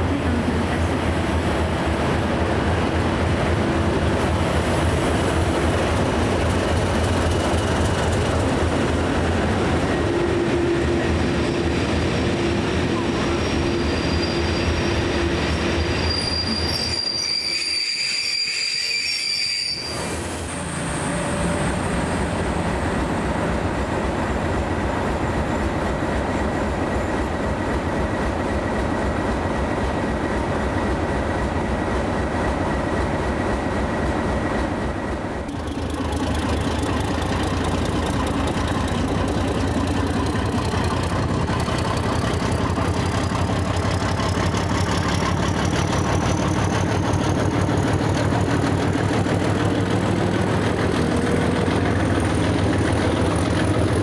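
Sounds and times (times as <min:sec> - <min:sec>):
train rumbling: 0:00.0 - 0:54.0
high wheel squeal: 0:11.5 - 0:22.5.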